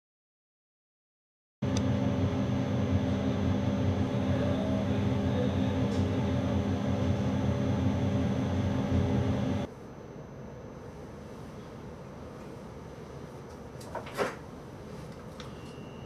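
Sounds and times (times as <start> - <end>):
train cab equipment hum: 1.6 - 16.0
constant electrical tones: 1.7 - 11.5.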